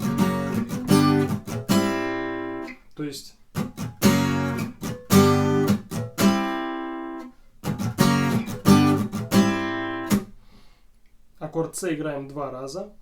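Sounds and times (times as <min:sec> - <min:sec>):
acoustic guitar strumming: 0:00.0 - 0:02.8, 0:03.5 - 0:10.3.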